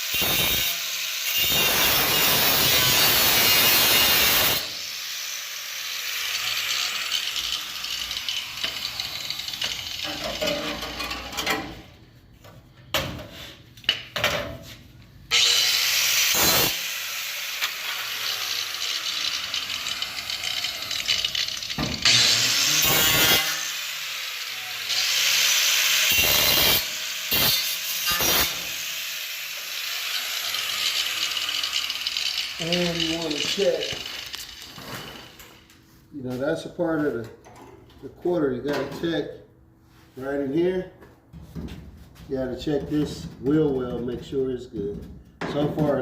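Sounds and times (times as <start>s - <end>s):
power tool cutting sheet metal: 0.0s - 11.4s, 15.3s - 35.6s.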